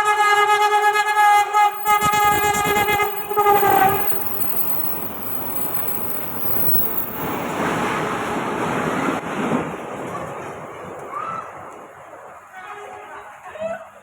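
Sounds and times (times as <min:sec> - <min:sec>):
train cars rumbling on rails: 0:01.8 - 0:11.0.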